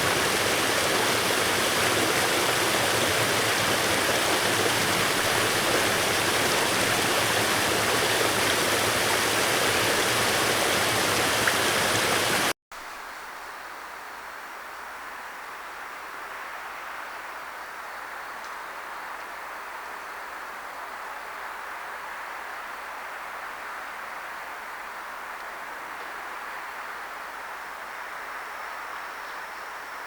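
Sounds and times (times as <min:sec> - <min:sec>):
flowing water rushing: 0:00.0 - 0:12.6.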